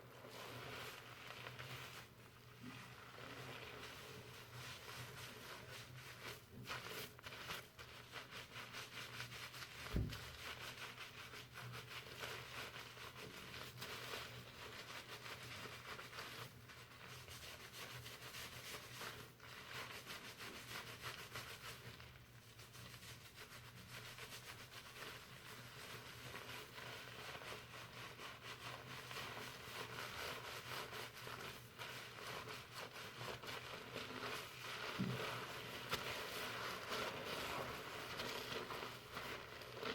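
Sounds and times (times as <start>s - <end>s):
lather rustling in wet hair: 0.0s - 39.9s
soft low bump: 9.9s - 10.3s.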